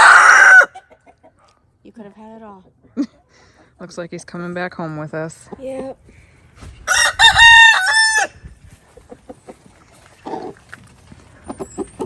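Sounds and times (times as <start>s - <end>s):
rooster crowing: 0.0s - 0.8s, 6.9s - 8.4s.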